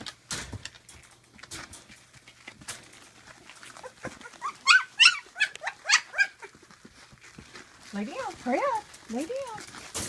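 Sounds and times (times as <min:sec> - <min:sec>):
dogs moving about: 0:00.0 - 0:10.0
puppy squeaking: 0:03.3 - 0:09.8.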